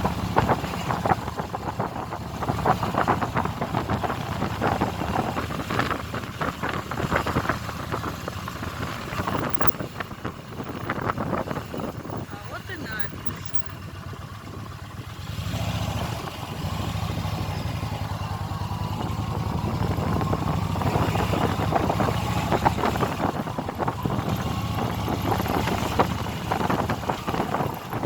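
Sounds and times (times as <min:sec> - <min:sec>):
motorcycle engine running: 0:00.0 - 0:28.0
rough gusty noise: 0:02.7 - 0:13.7.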